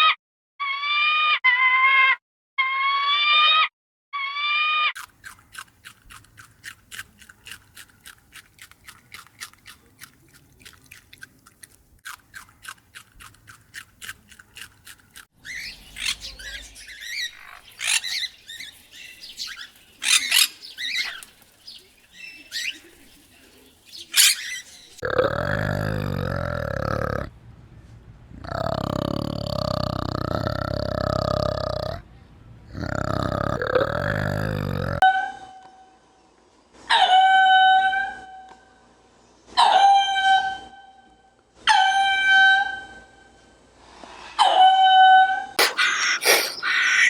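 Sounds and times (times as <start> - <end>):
pitched arching animal calls: 6.9 - 27.3, 45.6 - 47.0.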